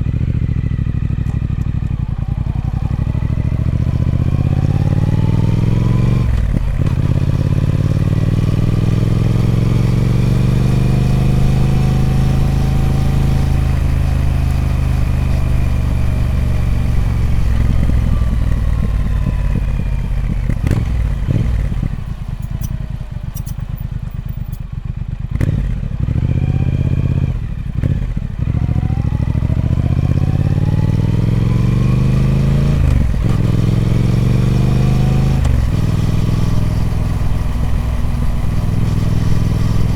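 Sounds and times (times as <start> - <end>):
motorcycle engine through gear changes: 0.0 - 39.9.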